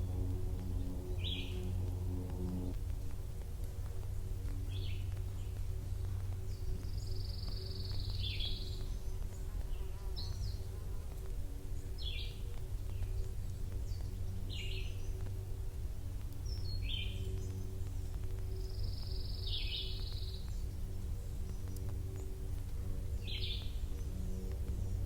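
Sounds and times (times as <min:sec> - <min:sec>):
low steady rumble: 0:00.0 - 0:25.0
songbirds calling: 0:00.0 - 0:25.0.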